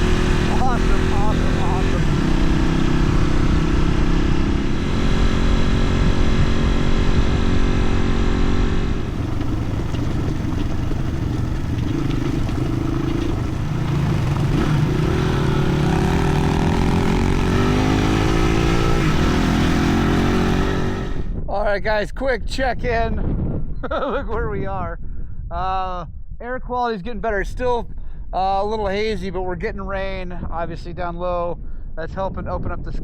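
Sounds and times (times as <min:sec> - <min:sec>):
dirt bike engine climbing: 0:00.0 - 0:21.3.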